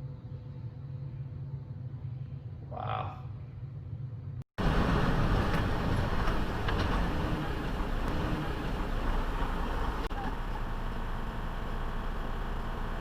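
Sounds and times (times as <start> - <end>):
moving vehicle road noise: 4.6 - 13.0.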